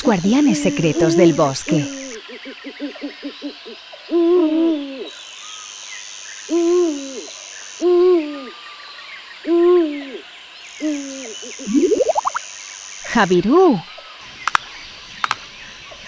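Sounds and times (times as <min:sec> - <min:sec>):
owl hooting: 0:00.3 - 0:05.2, 0:06.5 - 0:08.6, 0:09.4 - 0:10.2, 0:10.8 - 0:12.3.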